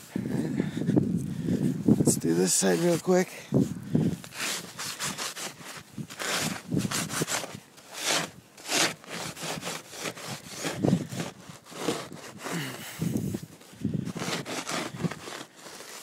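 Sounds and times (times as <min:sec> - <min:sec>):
scraping snow off a car: 0:04.3 - 0:16.0.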